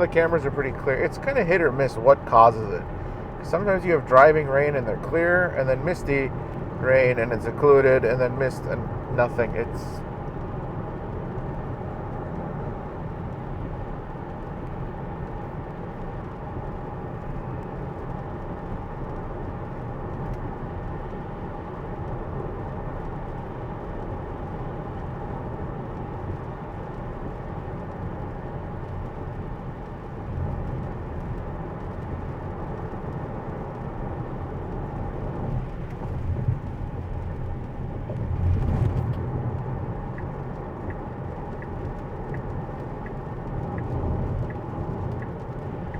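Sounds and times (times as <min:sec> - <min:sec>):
car cabin road noise: 0:00.0 - 0:45.9
tyres on wet road: 0:00.0 - 0:45.9
deep rumble: 0:29.9 - 0:45.9.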